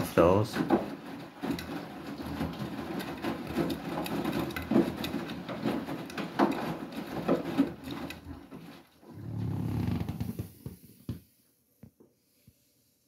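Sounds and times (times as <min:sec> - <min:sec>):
soft thumps of tumbling load: 0:00.0 - 0:09.1
water sloshing in washing machine: 0:00.0 - 0:09.8.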